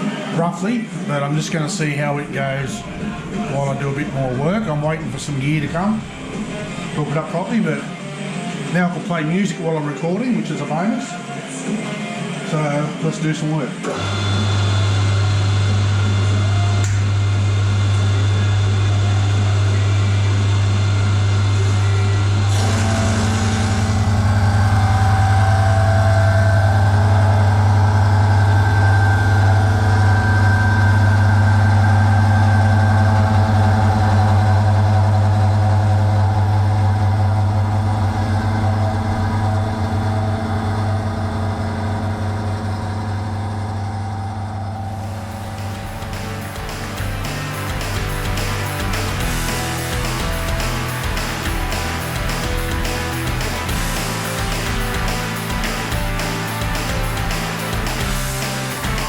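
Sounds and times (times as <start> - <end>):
milling machine humming: 0.0 - 8.8, 13.7 - 59.0
cutter cutting metal: 13.8 - 17.2, 19.3 - 32.8.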